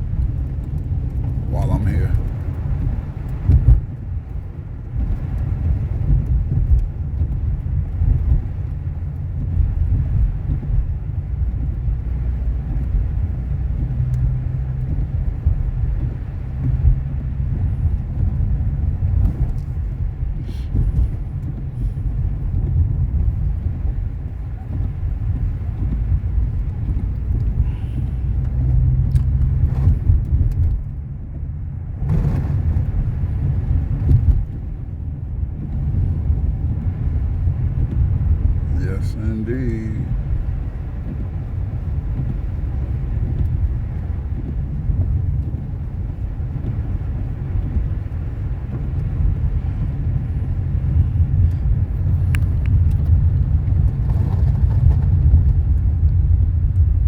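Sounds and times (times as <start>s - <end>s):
car engine and tyre rumble: 0.0s - 57.0s
faint clicks: 19.0s - 31.0s, 51.4s - 54.0s.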